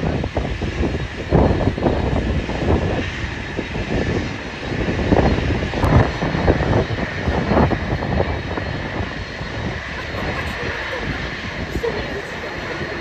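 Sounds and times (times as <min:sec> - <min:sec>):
airliner engines running: 0:00.0 - 0:13.0
wind buffeting microphone: 0:00.0 - 0:13.0.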